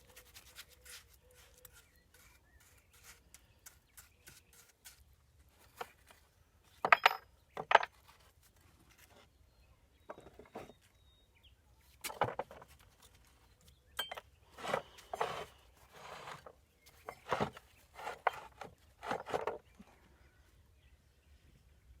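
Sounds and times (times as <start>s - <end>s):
tools knocking and clinking: 6.8s - 8.0s, 14.0s - 14.3s
tools scraping building materials: 14.0s - 19.7s.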